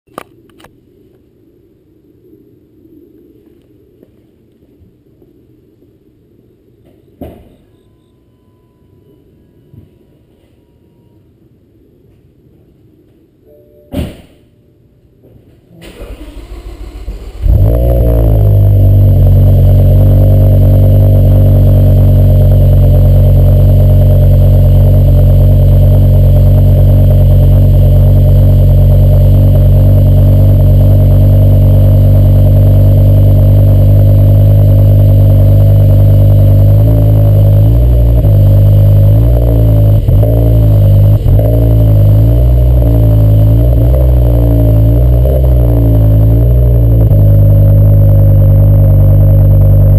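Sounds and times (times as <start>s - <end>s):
car engine starting and idling: 15.8s - 49.9s
engine throttle blips: 15.9s - 49.9s.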